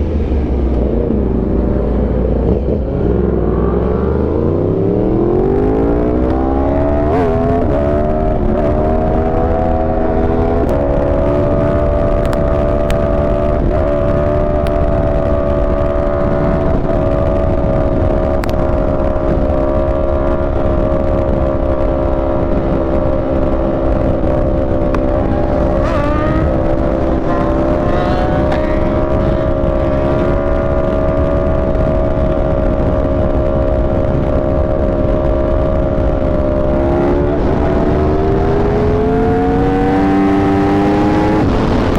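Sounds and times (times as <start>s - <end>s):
motorcycle engine cruising: 0.0s - 41.9s
wind rush on microphone: 0.0s - 41.9s.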